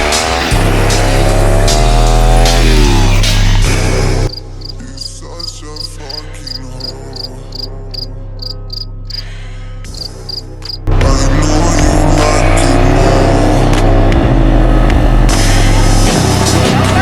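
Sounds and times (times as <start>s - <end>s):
crickets chirping: 4.3s - 9.2s, 9.9s - 10.8s.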